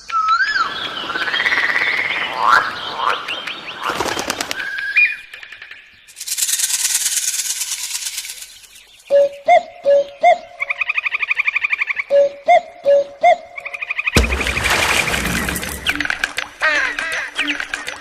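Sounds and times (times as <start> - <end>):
rapid rattling bird call: 3.7 - 9.1, 14.2 - 18.0
birds whistling: 8.4 - 17.8.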